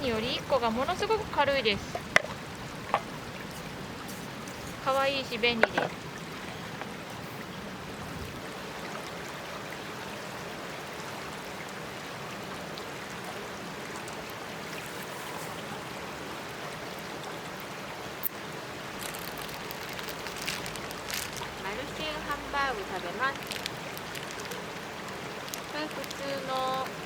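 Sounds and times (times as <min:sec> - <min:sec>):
rushing outdoor background noise: 0:00.0 - 0:27.0.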